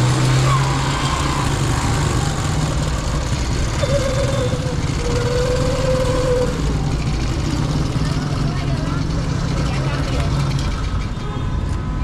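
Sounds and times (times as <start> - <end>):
motorcycle engine running: 1.3 - 11.2.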